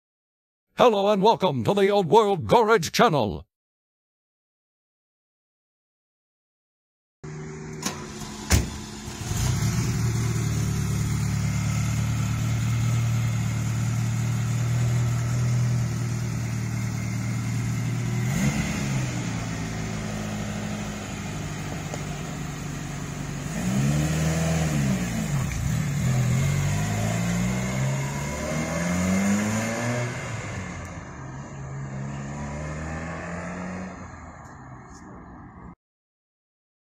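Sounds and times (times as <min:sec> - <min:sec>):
car engine idling and revving: 0:07.2 - 0:35.8.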